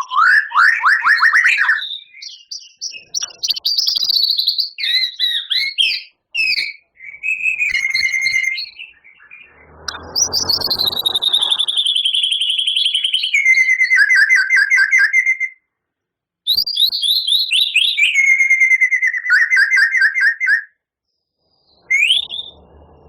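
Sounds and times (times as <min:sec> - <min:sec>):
bird singing trilled phrases: 0:00.0 - 0:15.6, 0:16.5 - 0:20.6
bird rising whistle: 0:07.0 - 0:15.5, 0:21.6 - 0:23.0.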